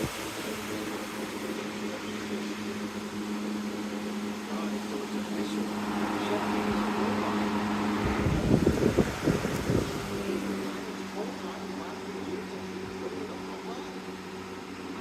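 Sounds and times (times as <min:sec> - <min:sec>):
box fan motor hum: 0:00.0 - 0:15.0
low rumbling noise: 0:00.0 - 0:15.0
rush of air: 0:05.7 - 0:10.9.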